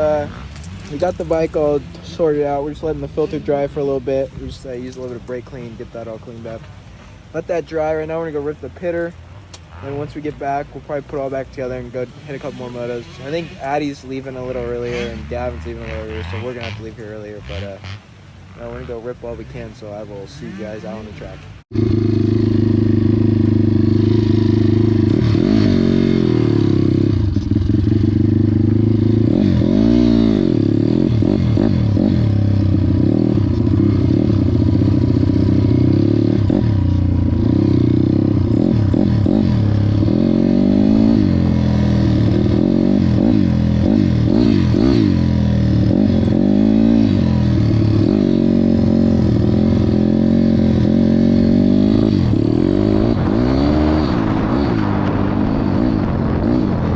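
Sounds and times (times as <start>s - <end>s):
pit bike engine revving: 0.0s - 6.5s, 7.2s - 56.9s.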